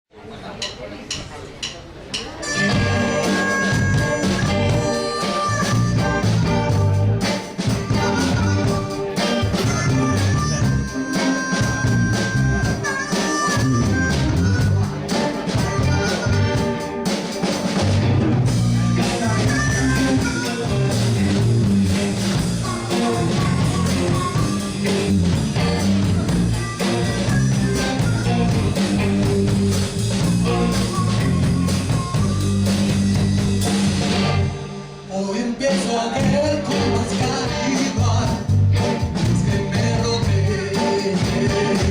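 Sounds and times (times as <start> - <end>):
drum kit: 0.6 - 41.9
bass: 0.7 - 41.9
guitar: 2.3 - 41.9
harmonica bending notes: 2.4 - 17.8, 18.5 - 35.1.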